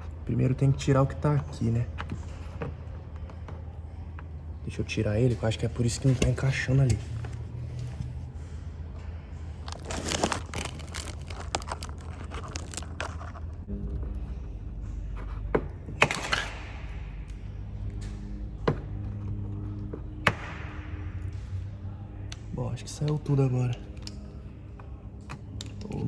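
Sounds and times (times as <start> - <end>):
scraping crinkling and tearing: 9.6 - 13.7.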